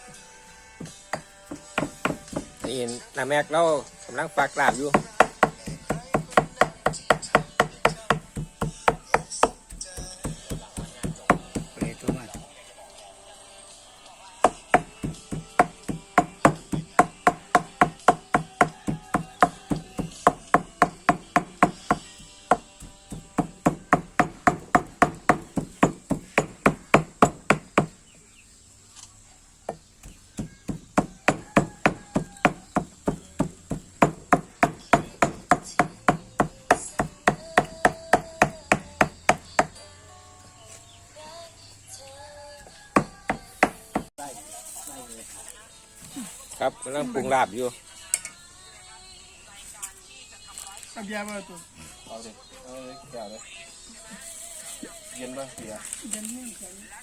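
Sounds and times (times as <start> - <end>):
knife chopping meat on board: 0.9 - 2.8, 4.6 - 12.5, 14.4 - 27.9, 30.0 - 39.7.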